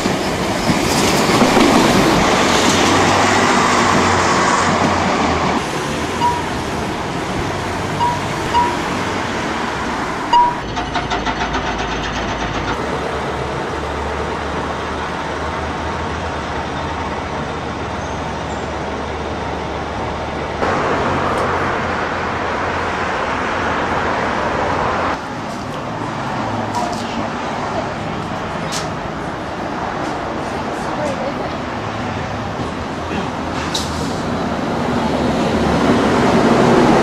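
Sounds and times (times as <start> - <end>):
railcar engine and wheels rumbling: 0.0 - 37.0.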